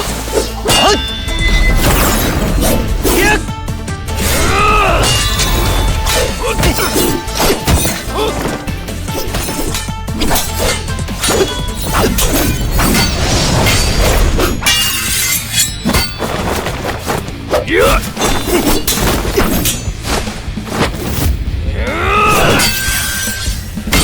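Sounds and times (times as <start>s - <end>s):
action soundtrack music: 0.0s - 24.0s
crashing smashing impacts: 0.8s - 17.5s
fight hits and whacks: 4.2s - 21.4s.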